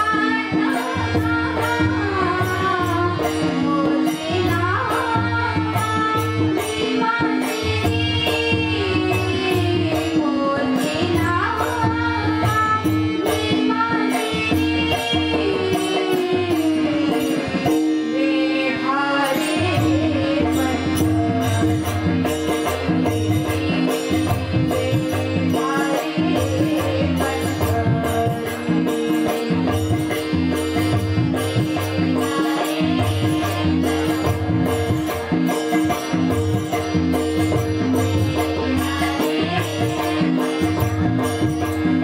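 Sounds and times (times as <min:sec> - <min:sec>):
drum strokes: 0:19.4 - 0:42.0.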